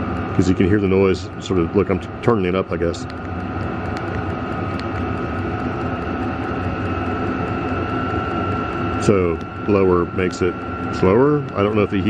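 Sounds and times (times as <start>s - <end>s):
air heater fan whirring: 0.0s - 12.0s
high whine: 0.0s - 12.0s
low hum: 0.0s - 12.0s
fuel pump ticking: 2.8s - 8.4s, 9.4s - 12.0s.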